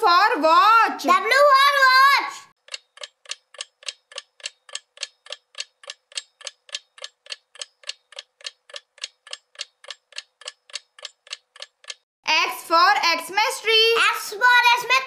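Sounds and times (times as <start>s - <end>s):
clock ticking: 2.6s - 12.1s.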